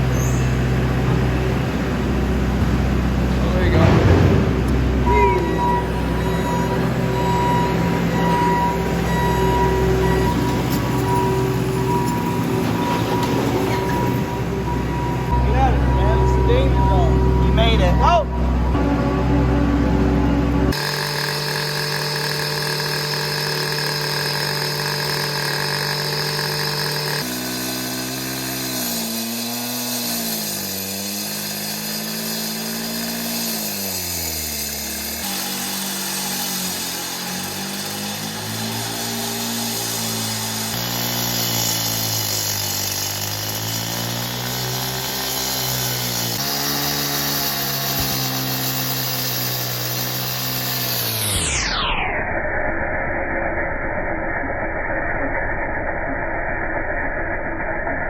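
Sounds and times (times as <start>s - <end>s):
power saw cutting concrete: 0.0s - 19.0s, 19.7s - 52.2s.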